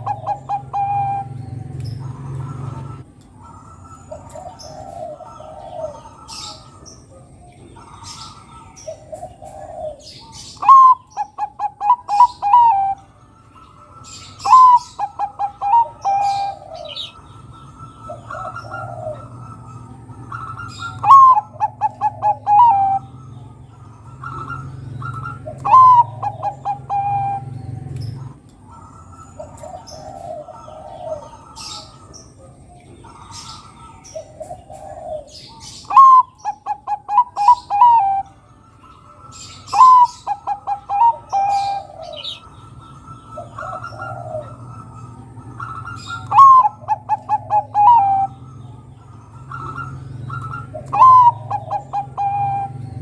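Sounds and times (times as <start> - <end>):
soft dove cooing: 0.0 - 13.0, 14.4 - 17.2, 18.0 - 23.2, 24.1 - 38.3, 39.4 - 42.5, 43.3 - 48.4, 49.3 - 53.0
dove singing staccato coos: 0.0 - 53.0
small birds chirping: 0.0 - 53.0.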